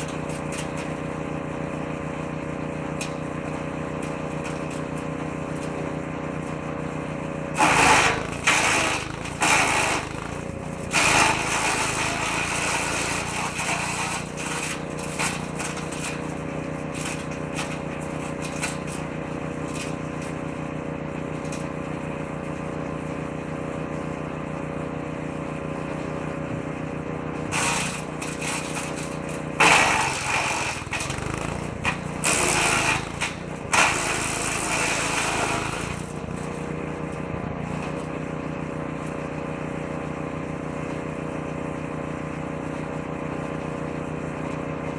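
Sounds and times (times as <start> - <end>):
woodchipper engine running: 0.0 - 44.9
branches being chipped: 27.6 - 36.6.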